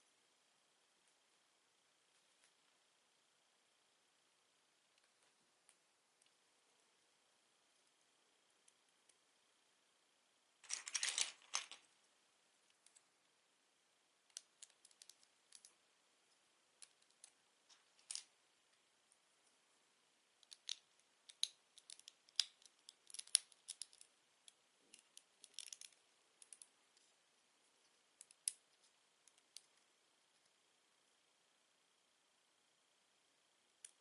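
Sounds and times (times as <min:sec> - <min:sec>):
plastic bricks clicking together: 0:20.4 - 0:24.1.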